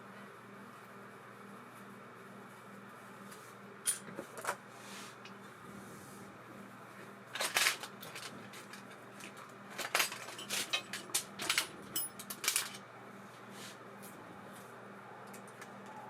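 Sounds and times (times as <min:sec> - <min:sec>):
metallic clicks of reel parts: 0:07.4 - 0:12.8.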